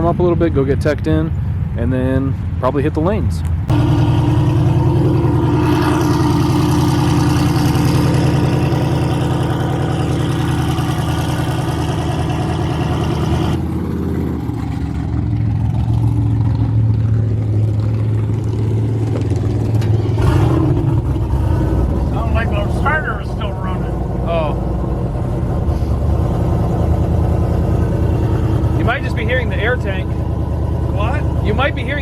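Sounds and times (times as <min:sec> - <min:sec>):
steady low hum: 0:03.5 - 0:19.6
truck engine idling: 0:03.6 - 0:32.0.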